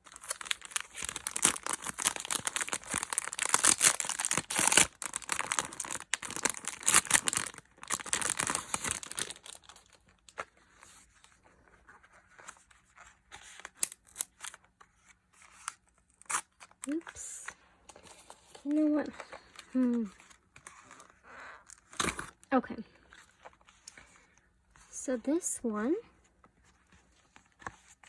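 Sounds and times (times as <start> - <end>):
packaging crinkling: 0.0 - 10.4, 13.4 - 14.6.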